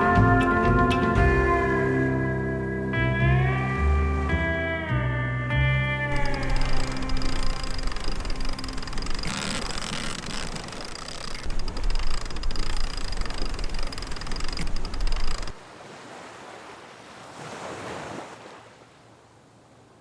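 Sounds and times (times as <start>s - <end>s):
sea water rushing past boat: 0.0s - 4.5s, 6.0s - 20.0s.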